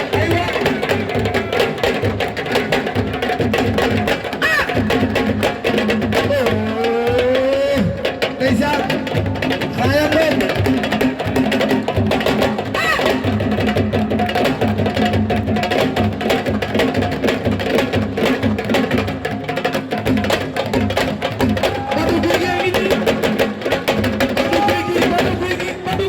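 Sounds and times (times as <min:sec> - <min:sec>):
drums playing fast rhythm: 0:00.0 - 0:26.0.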